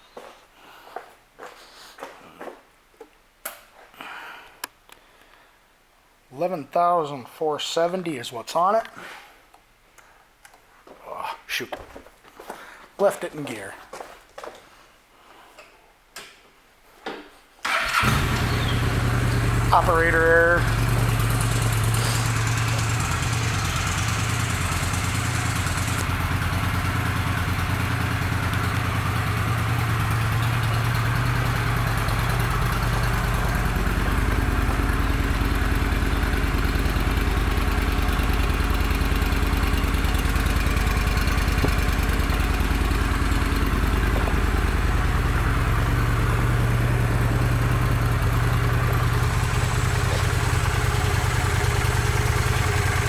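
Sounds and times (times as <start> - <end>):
motorcycle engine idling: 17.7 - 53.0.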